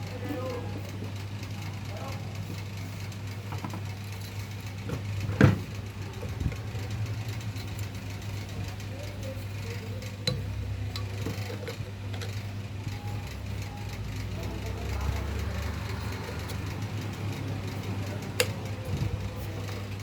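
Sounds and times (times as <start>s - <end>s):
fan motor humming: 0.0s - 20.0s.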